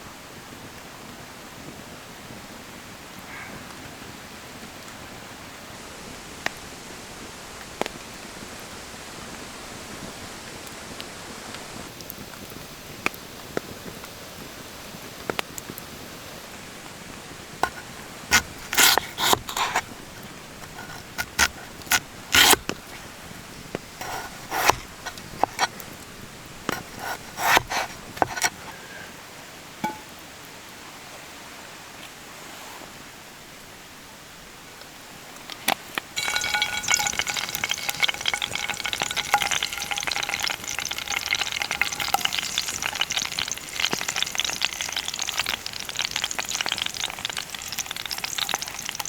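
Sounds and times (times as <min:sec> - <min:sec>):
sharp scrapes and knocks: 0:17.6 - 0:19.9, 0:20.6 - 0:22.8, 0:24.0 - 0:25.8, 0:36.2 - 0:49.0
rain hissing: 0:36.2 - 0:49.0.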